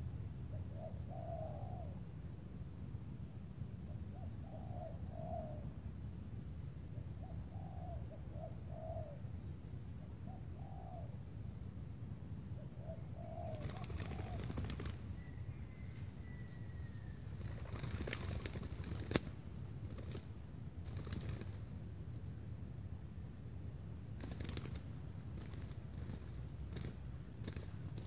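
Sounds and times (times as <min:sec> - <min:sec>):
doves cooing: 0:00.6 - 0:02.0, 0:04.0 - 0:05.7, 0:07.2 - 0:09.3, 0:10.2 - 0:11.2, 0:12.6 - 0:20.3.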